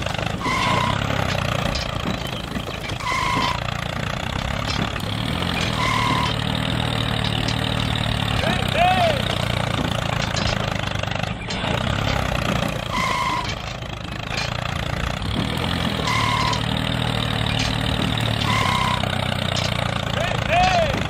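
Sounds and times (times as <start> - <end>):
small engine running steadily: 0.0 - 21.0
short high-pitched tones: 18.4 - 19.2.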